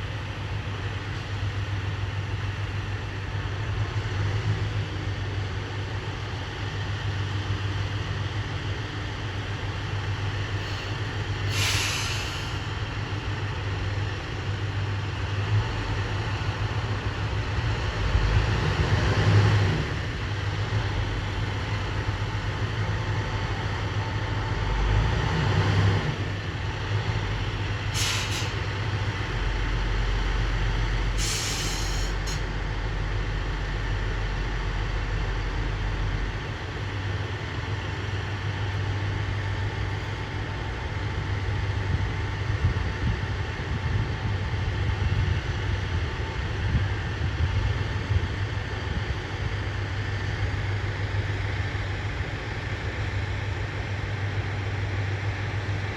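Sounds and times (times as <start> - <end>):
diesel railcar engine idling: 0.0 - 55.9
air brake hisses: 10.6 - 12.8, 27.9 - 28.6, 31.2 - 32.5.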